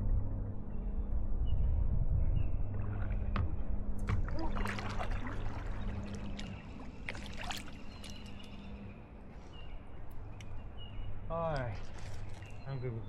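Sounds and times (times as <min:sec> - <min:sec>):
low steady hum: 0:00.0 - 0:13.0
kayak paddle splashing: 0:04.2 - 0:08.6.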